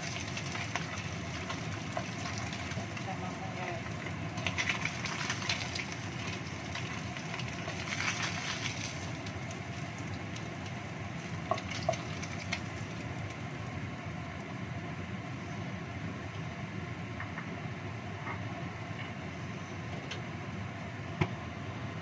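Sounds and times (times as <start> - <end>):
oil sizzling and crackling: 0.0 - 16.4.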